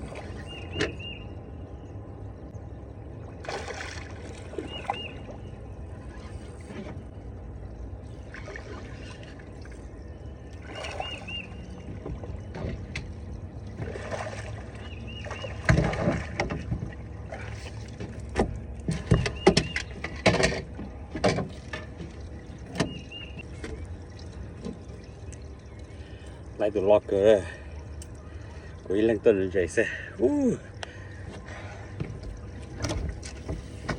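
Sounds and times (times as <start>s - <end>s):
boat engine rumble: 0.0s - 33.9s
water against hull: 0.0s - 33.9s
loud knocks and clunks: 15.6s - 16.9s.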